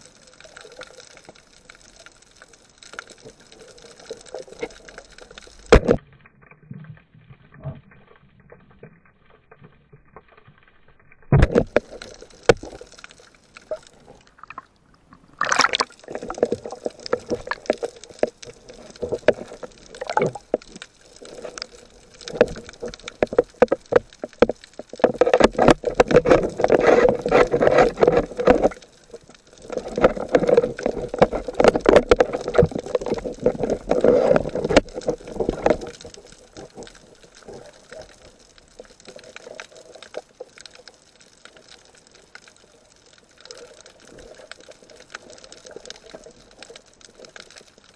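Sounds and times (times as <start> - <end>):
water sloshing and splashing: 11.2 - 47.9.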